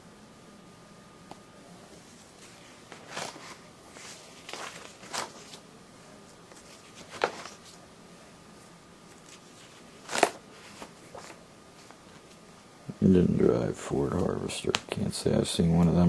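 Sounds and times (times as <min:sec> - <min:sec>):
paper pages turning: 0:02.0 - 0:05.6, 0:06.5 - 0:07.8, 0:09.1 - 0:12.4.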